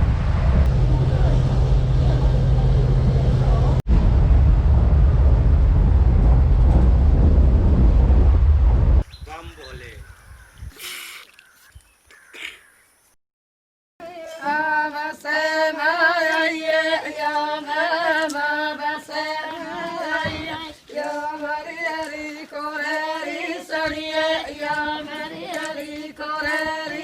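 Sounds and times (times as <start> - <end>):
held drone: 0.0 - 8.6
woman singing ornamented melody: 14.0 - 16.5.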